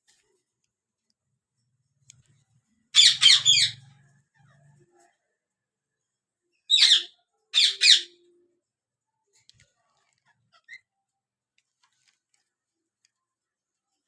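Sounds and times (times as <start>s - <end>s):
parakeet squawking: 3.0s - 3.9s, 6.7s - 8.2s.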